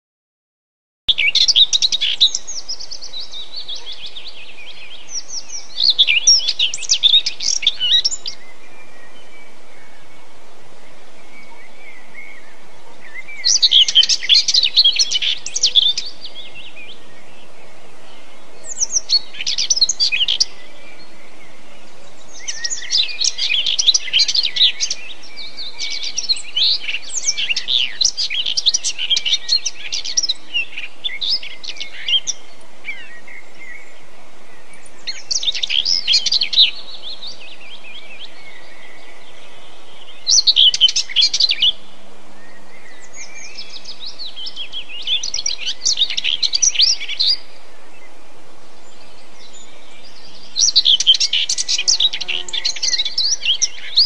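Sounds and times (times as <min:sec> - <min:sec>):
songbird singing: 0:01.1 - 0:54.0
steady background hiss: 0:01.1 - 0:54.0.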